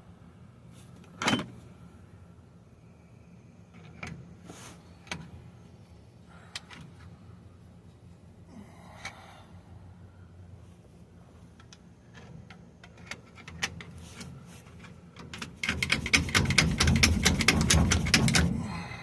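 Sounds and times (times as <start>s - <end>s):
metal parts clicking and rattling: 11.6s - 18.6s.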